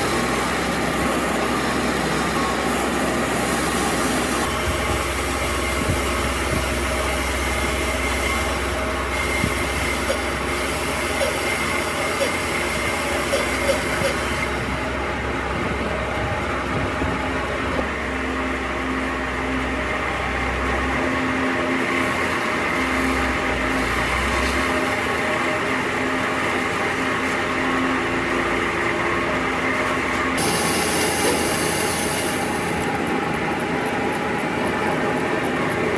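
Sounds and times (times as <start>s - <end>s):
machine humming and whining: 0.0s - 35.9s.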